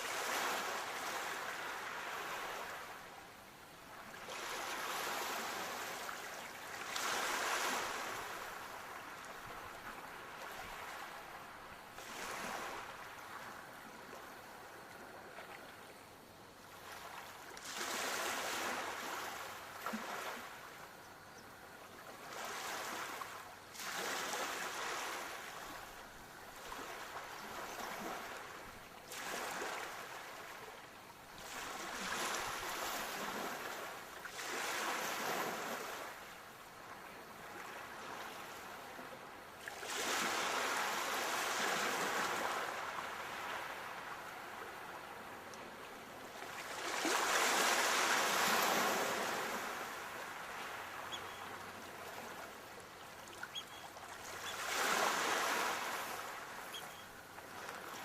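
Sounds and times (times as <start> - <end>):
sea waves breaking: 4.2 - 14.6, 22.2 - 30.7, 39.6 - 58.0.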